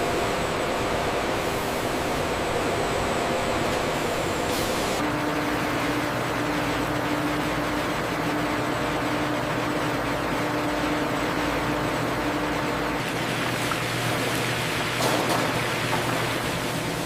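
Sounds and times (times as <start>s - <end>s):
machinery noise: 0.0s - 5.8s.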